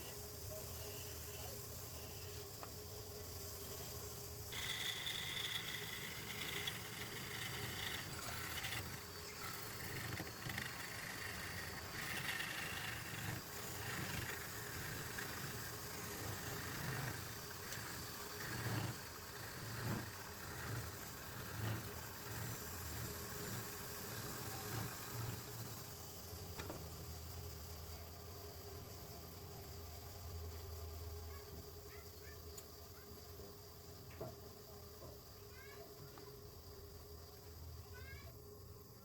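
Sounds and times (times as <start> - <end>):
motor running: 0.0 - 27.7
faint high whine: 0.0 - 39.0.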